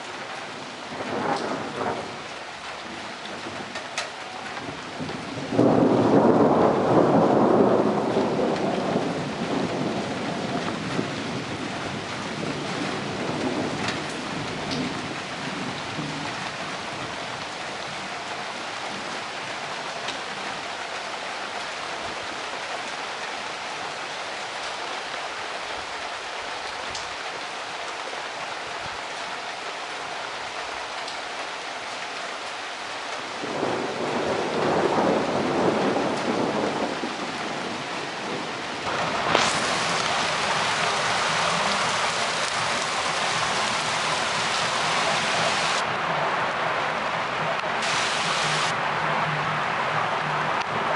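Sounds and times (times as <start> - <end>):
steady rain hissing: 0.0 - 50.9
thunder rumbling: 1.0 - 2.3, 4.5 - 16.4, 33.4 - 48.8
sharp thunderclap: 5.0 - 10.0, 38.9 - 45.8.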